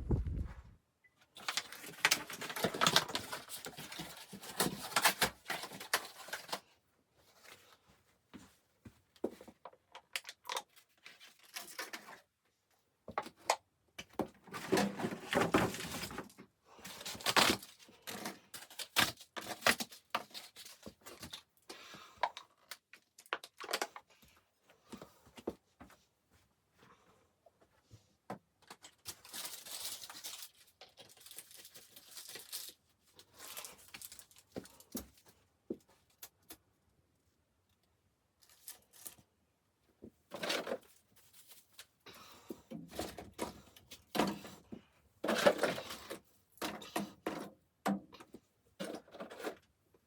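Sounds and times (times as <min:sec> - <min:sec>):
things being handled: 0:40.3 - 0:49.8.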